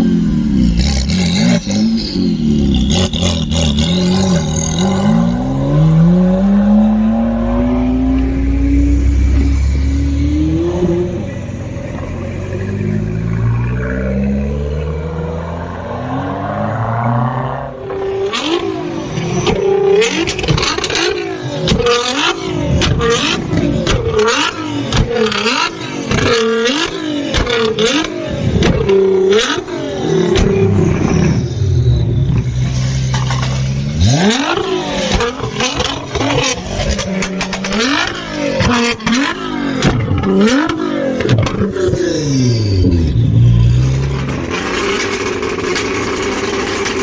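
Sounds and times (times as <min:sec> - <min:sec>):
sports car engine revving: 0:00.0 - 0:47.0
exhaust pops and bangs: 0:19.4 - 0:29.6, 0:32.3 - 0:42.0, 0:42.9 - 0:47.0.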